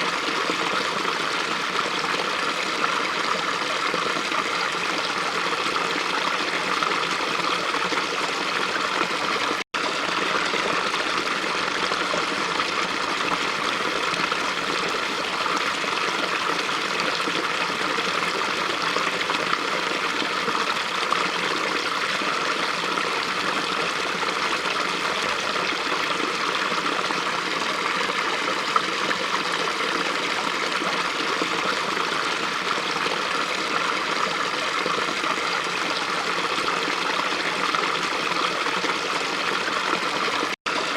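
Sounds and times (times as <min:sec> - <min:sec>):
brook flowing over stones: 0:00.0 - 0:40.9.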